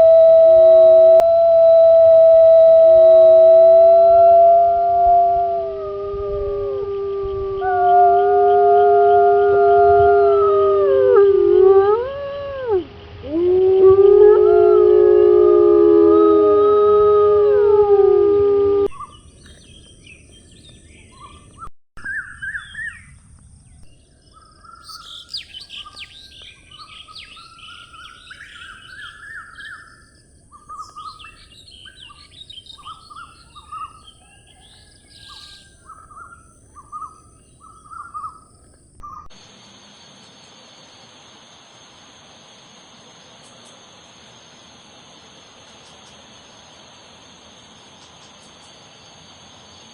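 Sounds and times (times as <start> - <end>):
howl with falling tones: 0.0 - 18.9
birds chirping: 24.3 - 39.3
steady high hiss: 35.3 - 49.9.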